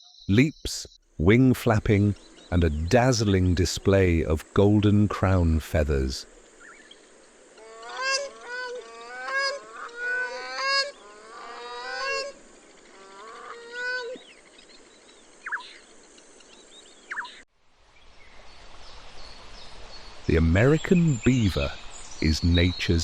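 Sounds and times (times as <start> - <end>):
faint background noise: 0.3 - 23.0
cranes honking: 7.6 - 14.2.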